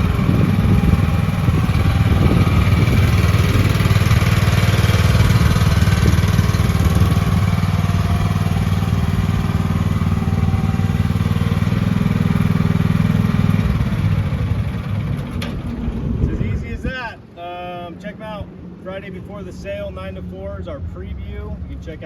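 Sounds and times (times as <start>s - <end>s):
excavator engine running: 0.0s - 17.4s.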